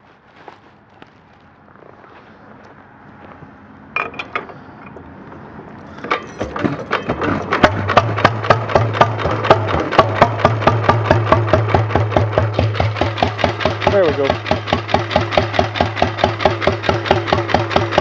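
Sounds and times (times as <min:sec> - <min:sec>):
engine clicks while cranking: 0:06.0 - 0:18.0
single-cylinder engine running: 0:06.0 - 0:18.0.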